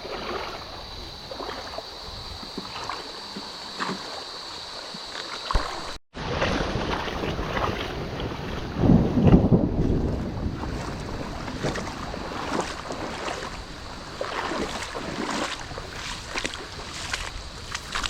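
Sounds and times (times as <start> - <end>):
water sloshing and splashing: 0.0 - 18.0.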